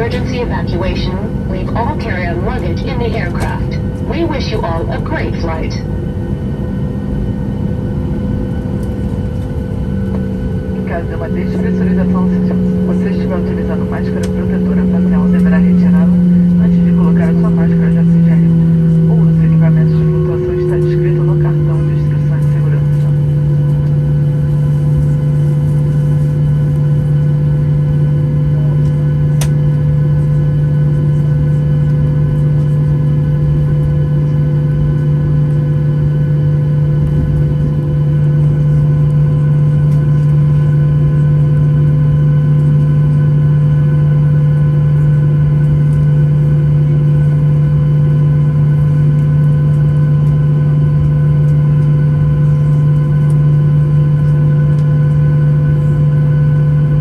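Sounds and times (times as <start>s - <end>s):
steady tones: 0.0s - 6.1s, 9.8s - 24.5s
airplane cabin drone: 0.0s - 57.0s.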